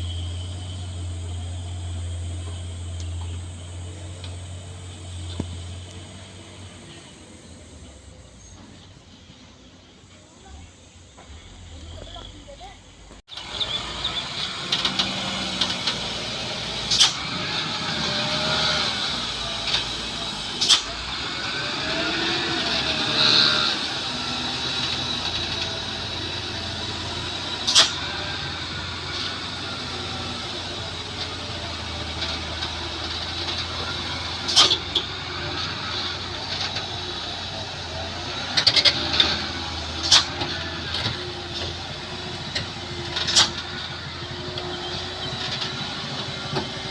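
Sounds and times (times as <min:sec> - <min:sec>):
truck engine running: 0:00.0 - 0:46.9.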